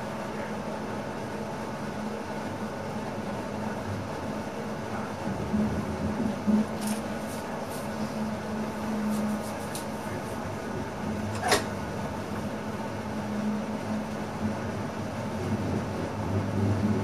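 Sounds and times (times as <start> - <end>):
train cab hum: 0.0 - 17.0.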